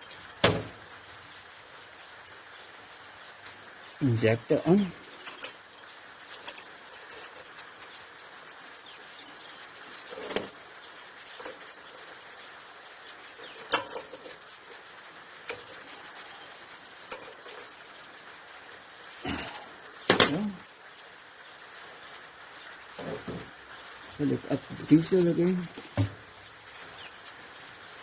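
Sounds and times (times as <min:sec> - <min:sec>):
metal tools clinking and knocking: 0:05.2 - 0:05.6, 0:06.3 - 0:07.5, 0:13.5 - 0:14.4.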